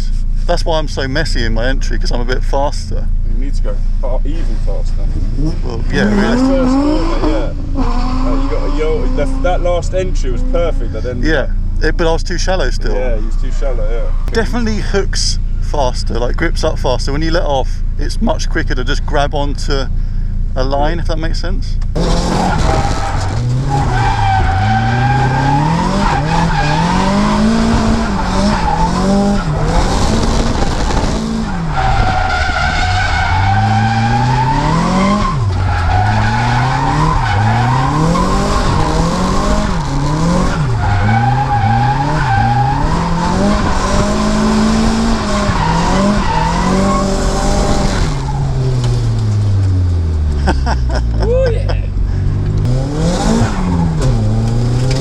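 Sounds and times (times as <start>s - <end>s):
car engine revving: 0.0s - 51.2s, 51.9s - 55.0s
tyres squealing: 22.0s - 49.4s.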